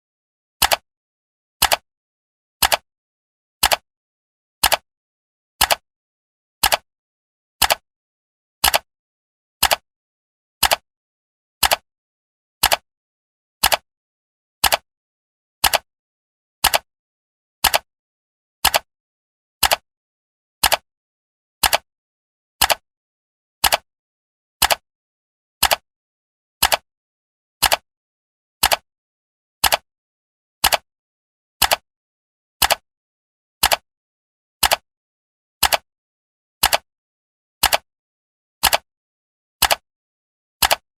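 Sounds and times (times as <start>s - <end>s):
clock ticking: 12.6s - 12.8s, 14.6s - 14.8s, 20.6s - 20.8s, 21.6s - 21.8s, 23.6s - 23.8s, 26.6s - 26.8s, 27.6s - 27.8s, 28.6s - 28.8s, 29.6s - 29.8s, 30.6s - 30.8s, 31.6s - 31.8s, 32.6s - 32.8s, 33.6s - 33.8s, 34.6s - 34.8s, 35.6s - 35.8s, 36.6s - 36.8s, 37.6s - 37.8s, 38.6s - 38.8s, 39.6s - 39.8s, 40.6s - 40.8s.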